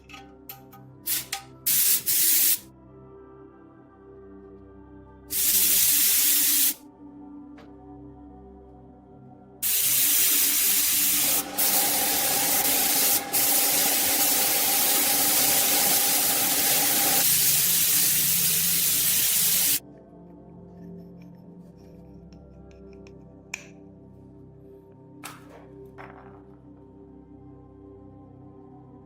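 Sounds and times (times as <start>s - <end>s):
soft background music: 0.0s - 29.0s
spray hiss: 1.1s - 2.6s, 5.3s - 6.8s, 9.6s - 19.8s.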